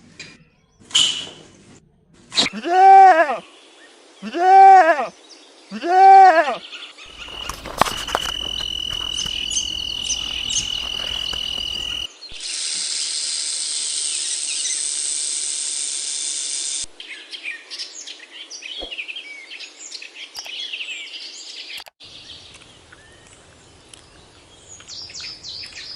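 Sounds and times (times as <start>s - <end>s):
short bird chirps: 7.1s - 12.6s
buzzing insect chorus: 7.1s - 16.8s
high-pitched insect tone: 7.1s - 16.8s.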